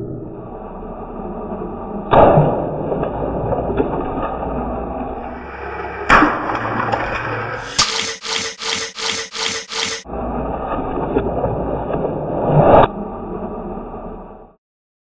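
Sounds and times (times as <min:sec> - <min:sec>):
whining mechanical hum: 0:04.5 - 0:10.6
loud crashes: 0:05.2 - 0:07.6.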